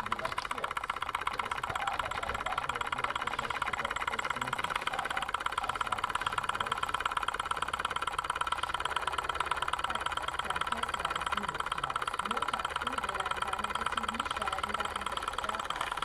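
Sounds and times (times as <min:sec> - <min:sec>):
stirling engine clattering: 0:00.0 - 0:16.0.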